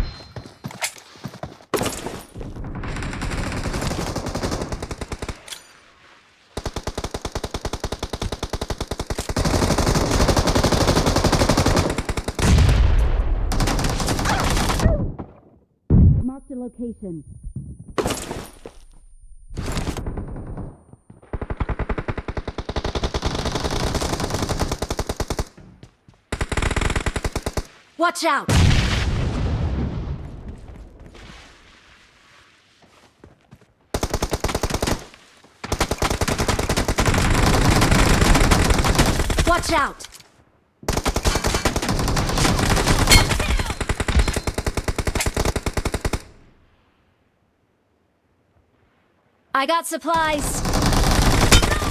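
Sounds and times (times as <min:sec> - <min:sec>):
video game automatic gunfire: 0:50.4 - 0:51.9.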